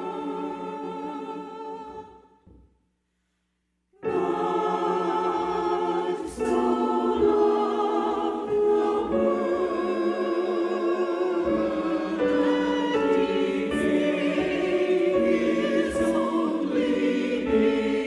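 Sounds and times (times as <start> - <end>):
choir singing: 0.0 - 2.4, 4.0 - 18.0.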